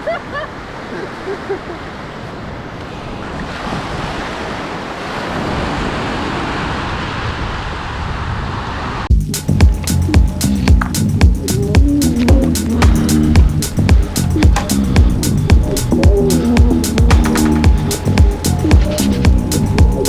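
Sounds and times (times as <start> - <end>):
ocean surf breaking: 0.0 - 9.1, 9.7 - 20.0.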